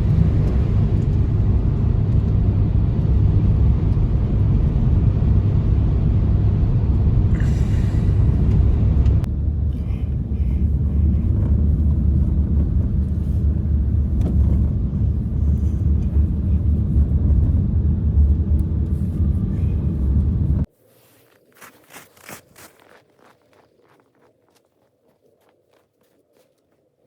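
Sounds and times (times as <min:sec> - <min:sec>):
blizzard wind buffeting microphone: 0:00.0 - 0:20.7.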